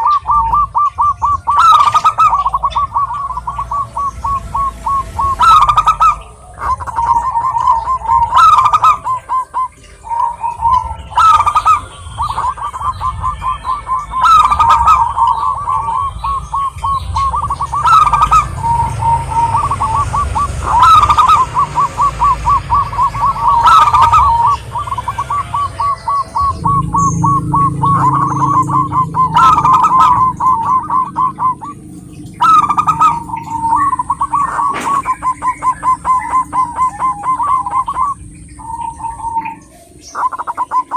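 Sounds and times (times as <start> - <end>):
doves cooing staccato: 0.0 - 40.9
louder higher dove note: 26.3 - 34.0.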